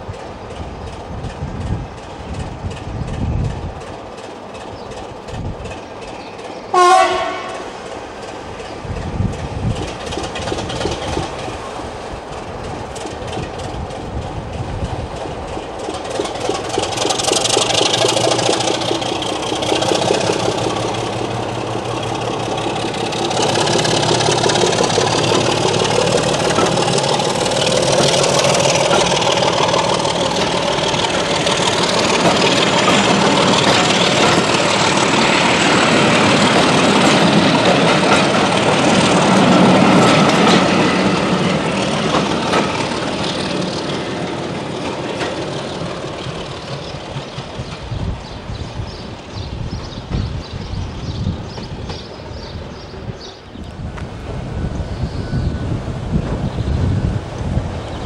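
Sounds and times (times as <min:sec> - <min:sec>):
train wheels clacking on rails: 0:00.0 - 0:58.0
locomotive horn blast: 0:06.7 - 0:07.8.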